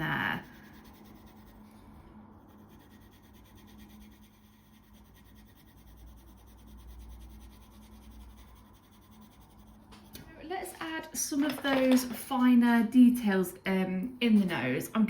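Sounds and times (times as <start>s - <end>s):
pencil scratching on paper: 0.0s - 10.3s
faint low hum: 0.0s - 15.0s.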